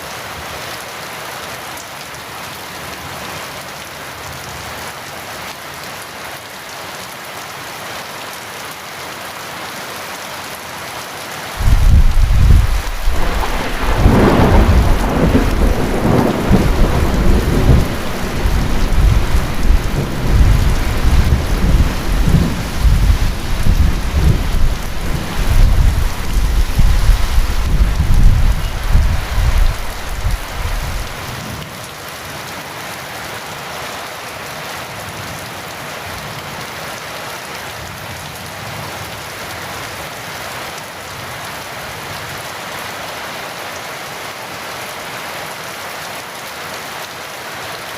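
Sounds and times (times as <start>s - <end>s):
heavy rain falling: 0.0s - 47.9s
thunder rumble: 11.6s - 31.3s.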